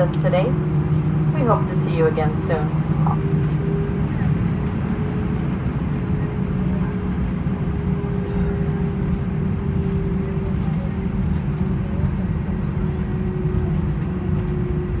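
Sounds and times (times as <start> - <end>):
faint steady hum: 0.0 - 4.4
aircraft cabin rumble: 0.0 - 15.0.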